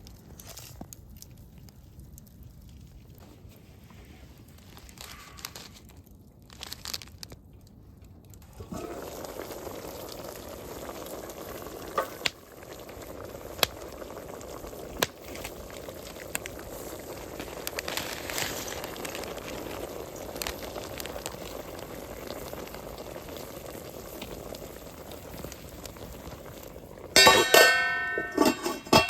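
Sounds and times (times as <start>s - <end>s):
packaging crinkling and rustling: 0.0s - 8.6s, 15.2s - 21.4s
pot bubbling at the boil: 0.0s - 29.0s.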